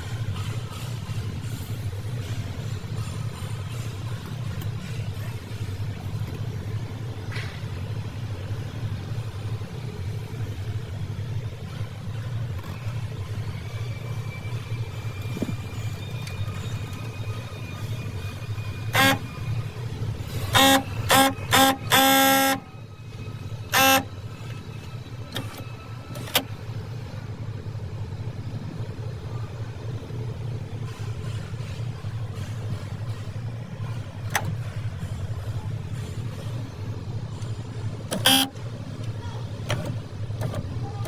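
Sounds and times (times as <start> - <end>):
steady low hum: 0.0 - 41.0
car horn honking: 18.1 - 26.4, 37.3 - 40.8.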